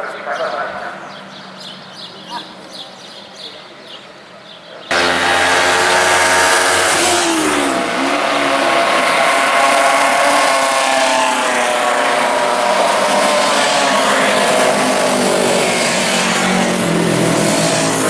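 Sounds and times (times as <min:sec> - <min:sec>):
racing motorcycle engine revving: 0:04.9 - 0:18.0.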